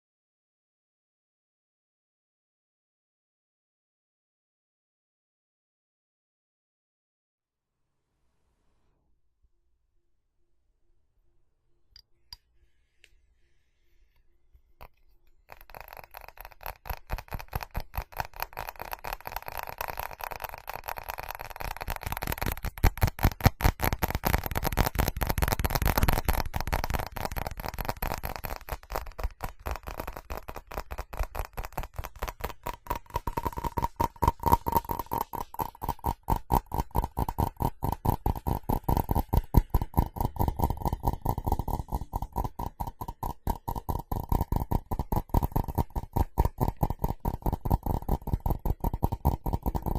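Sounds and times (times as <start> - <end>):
rapid tapping on ceramic: 14.8 - 49.9.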